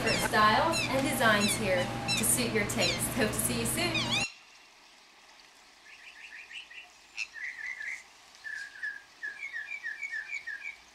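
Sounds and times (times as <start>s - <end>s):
small bird chirping: 0.0s - 3.0s, 5.8s - 10.8s.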